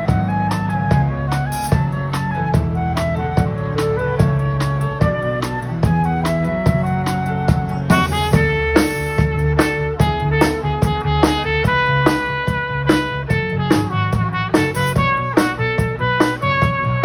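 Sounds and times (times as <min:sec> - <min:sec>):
steady drum beat: 0:00.0 - 0:17.0
upbeat pop ensemble music: 0:00.0 - 0:17.0.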